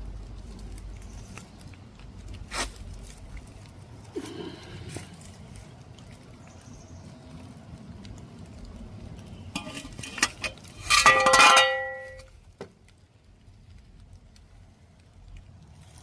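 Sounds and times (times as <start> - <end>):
metal clattering against metal: 9.6 - 12.3.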